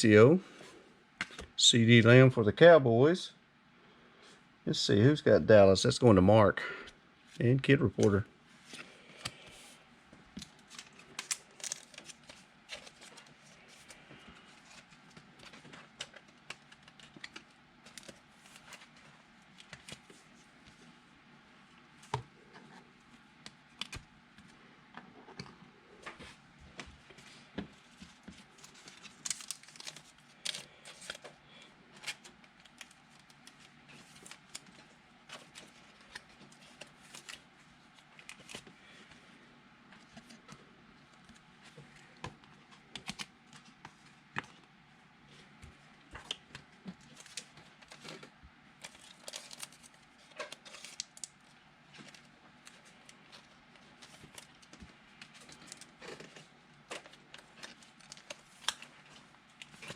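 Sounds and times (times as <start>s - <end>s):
trading cards being handled: 7.3s - 20.4s
card wrappers rustling: 10.3s - 20.8s, 27.1s - 39.2s, 46.1s - 59.9s.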